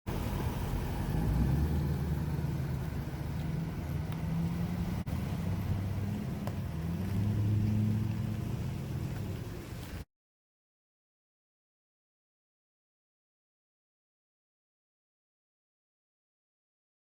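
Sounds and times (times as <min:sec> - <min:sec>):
tractor engine humming: 0:00.0 - 0:10.0.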